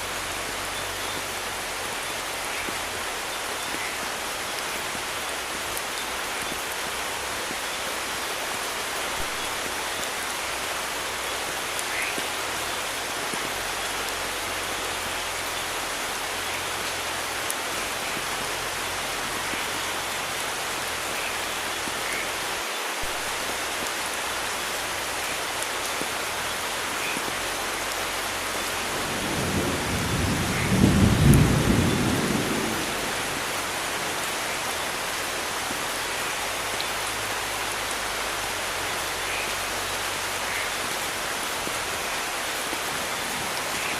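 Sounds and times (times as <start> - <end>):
steady rain falling: 0.0 - 43.9
thunder rumble: 28.9 - 34.2.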